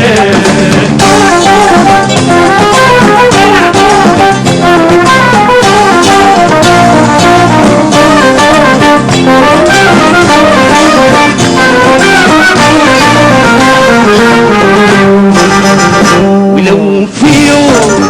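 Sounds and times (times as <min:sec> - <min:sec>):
steady drum beat: 0:00.0 - 0:16.3
live band melody: 0:00.0 - 0:18.0.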